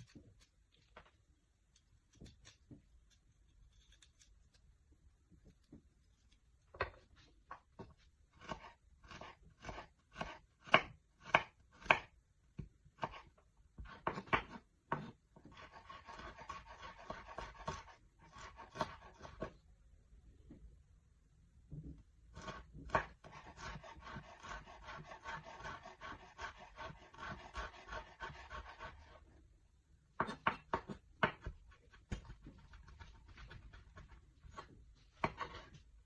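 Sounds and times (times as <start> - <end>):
knife chopping on cutting board: 13.8 - 19.5, 22.4 - 29.0, 30.2 - 35.7.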